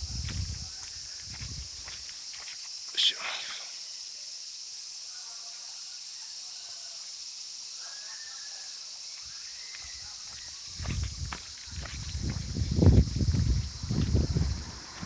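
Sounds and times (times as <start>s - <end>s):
wind blowing on microphone: 0.0s - 2.0s, 10.6s - 15.0s
crickets trilling: 0.0s - 15.0s.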